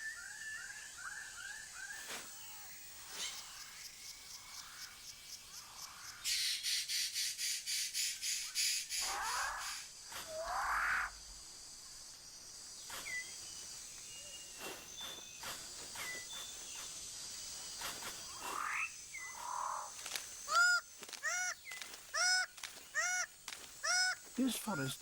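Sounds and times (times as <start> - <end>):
insect drone: 0.0 - 25.0
birds calling: 11.9 - 25.0.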